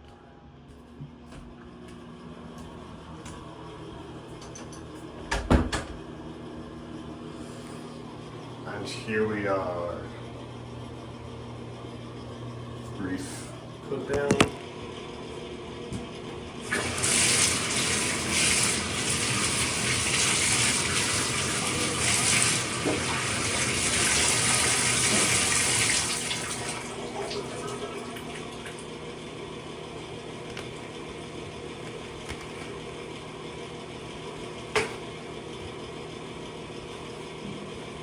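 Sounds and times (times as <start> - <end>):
tap water running into sink: 16.7 - 28.9.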